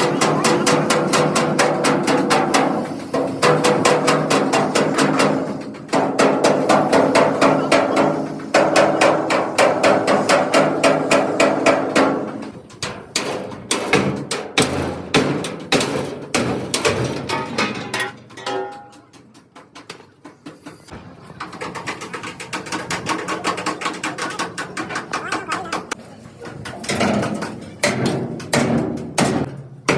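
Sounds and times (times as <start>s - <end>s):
hammer beating sheet metal: 0.0s - 19.3s, 26.9s - 29.9s.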